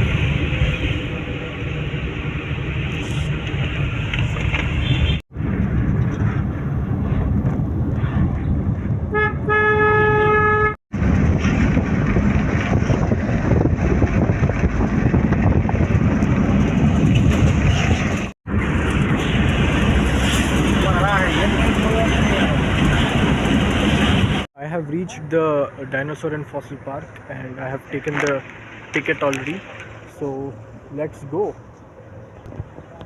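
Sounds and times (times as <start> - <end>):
road traffic noise: 0.0 - 33.0
vehicle horn honking: 9.1 - 10.8.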